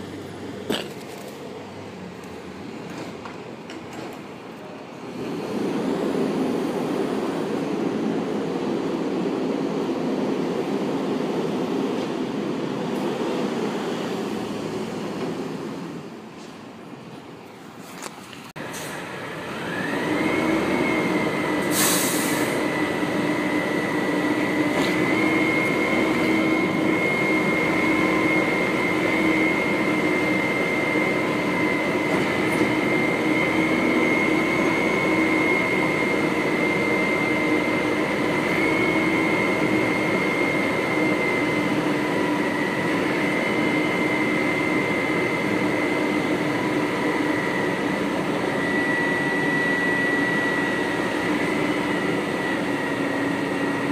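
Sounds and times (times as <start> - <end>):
garbage truck engine whining: 18.6 - 53.9
brief hiss: 21.7 - 22.6.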